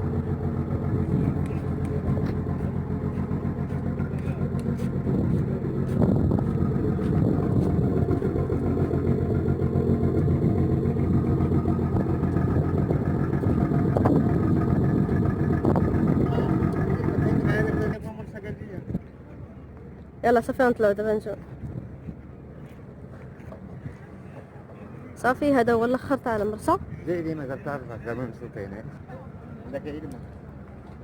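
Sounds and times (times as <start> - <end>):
motor engine running: 0.0 - 18.1.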